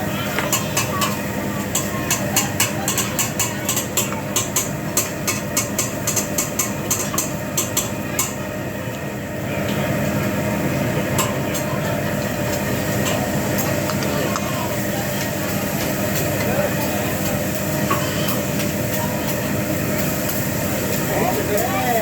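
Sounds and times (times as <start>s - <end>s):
metal spatulas clacking on griddle: 0.5s - 8.4s.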